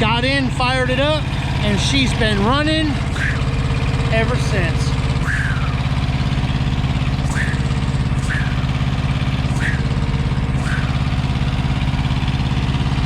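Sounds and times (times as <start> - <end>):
diesel engine idling: 0.0 - 13.0
short high chirps: 7.3 - 8.8, 9.5 - 11.2.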